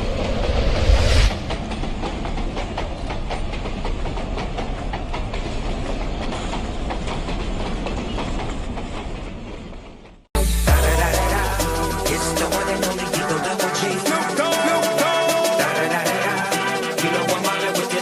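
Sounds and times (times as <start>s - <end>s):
train rumbling on rails: 0.0s - 10.3s
wheels clicking on rails: 1.4s - 10.3s.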